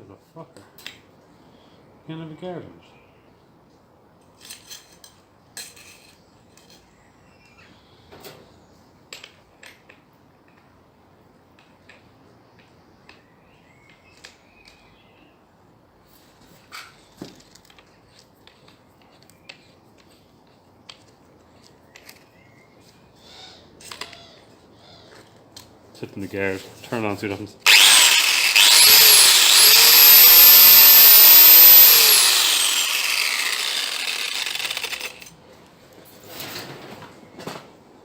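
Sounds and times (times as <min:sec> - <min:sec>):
sharp clicks and metallic clinks: 0:31.9 - 0:35.3.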